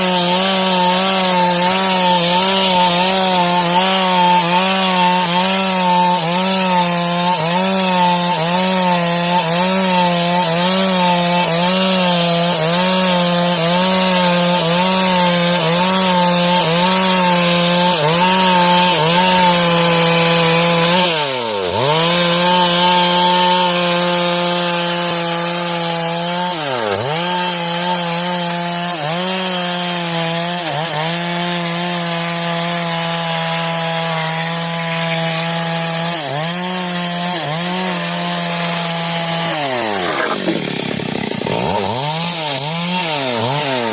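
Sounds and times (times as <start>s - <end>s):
chainsaw cutting wood: 0.0s - 43.9s.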